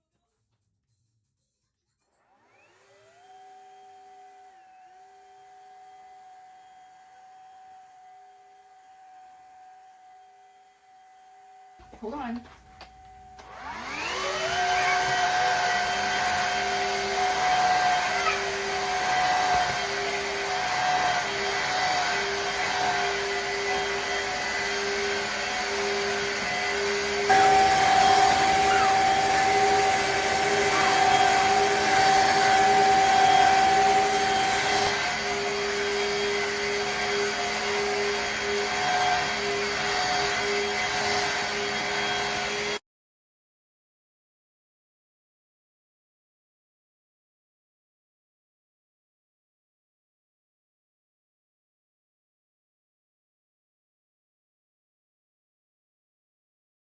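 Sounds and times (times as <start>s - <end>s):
vacuum mop motor whine: 2.2s - 42.8s.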